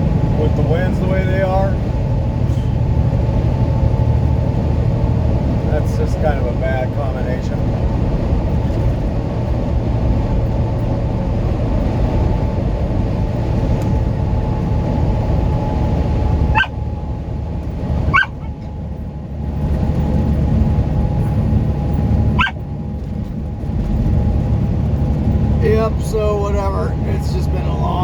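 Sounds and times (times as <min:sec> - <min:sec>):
truck road and engine noise: 0:00.0 - 0:28.0
rising squeaks: 0:18.0 - 0:18.8.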